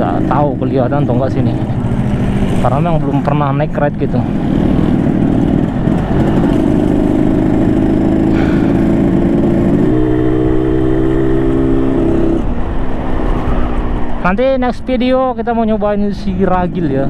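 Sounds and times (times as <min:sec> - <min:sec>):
motorcycle engine running: 0:00.0 - 0:12.8.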